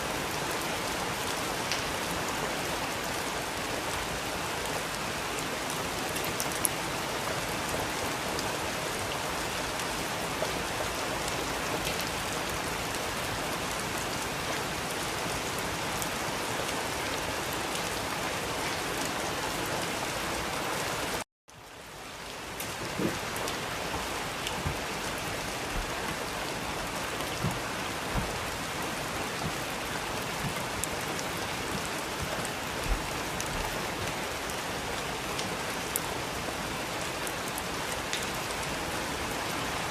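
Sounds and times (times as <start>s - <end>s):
steady rain falling: 0.0s - 39.9s
heavy raindrops knocking: 22.6s - 34.3s.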